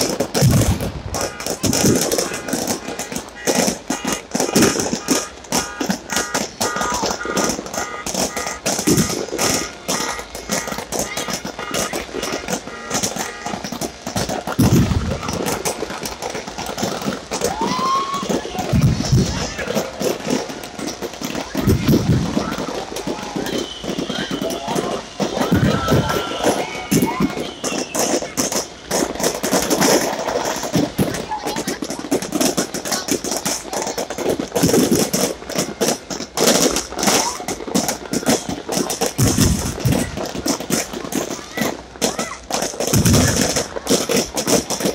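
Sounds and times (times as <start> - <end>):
low firework boom: 0.0 - 9.7, 14.6 - 15.8, 18.2 - 20.5
crowd voices: 0.0 - 44.9
fireworks bangs and crackles: 0.0 - 44.9.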